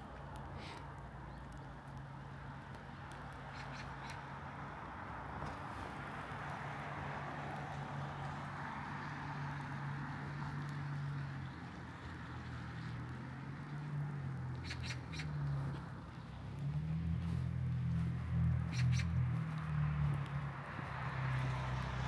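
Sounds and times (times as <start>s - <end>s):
small bird high calls: 14.6s - 15.4s, 18.7s - 19.2s.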